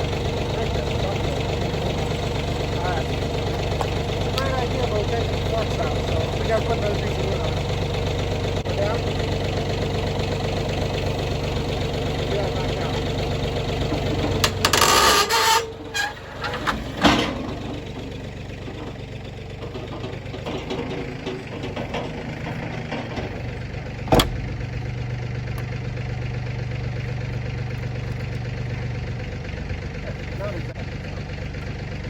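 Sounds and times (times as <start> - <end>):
motor humming: 0.0 - 32.0
sharp metallic clanks: 11.1 - 25.1.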